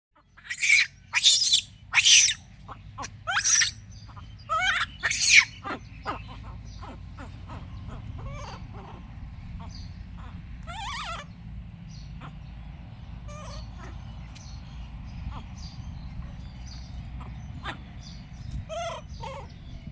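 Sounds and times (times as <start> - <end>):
monkey chirps: 0.4 - 2.4, 3.0 - 3.8, 4.5 - 8.9
monkey squeaky calls: 0.4 - 2.4, 3.0 - 3.8, 4.5 - 7.0, 10.7 - 11.2, 18.7 - 19.5.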